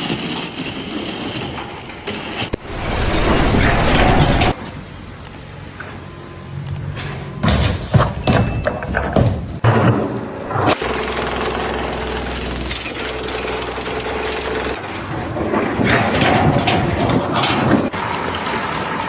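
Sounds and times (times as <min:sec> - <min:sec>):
construction machinery din: 0:00.0 - 0:19.0
knocks and clatter: 0:14.3 - 0:18.0.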